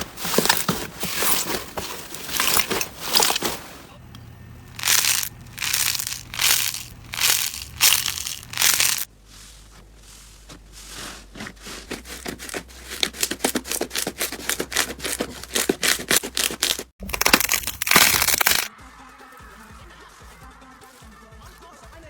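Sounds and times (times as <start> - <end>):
loud crunching burst: 4.6 - 9.1, 13.2 - 18.7
slime crackling and popping: 4.8 - 9.1, 15.6 - 18.7.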